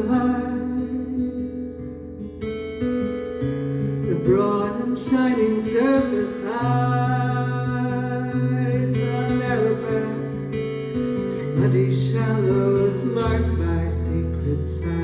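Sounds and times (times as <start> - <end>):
woman singing: 0.0 - 1.8, 4.0 - 10.6, 11.4 - 15.0
acoustic guitar: 0.0 - 15.0.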